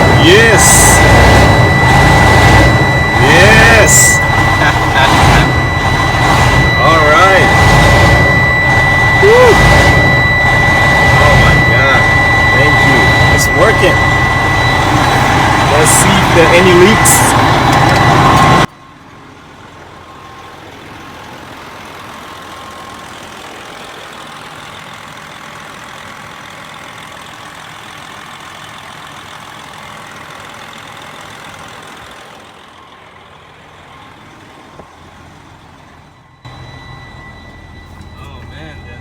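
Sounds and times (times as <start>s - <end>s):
truck engine idling: 0.0s - 39.0s.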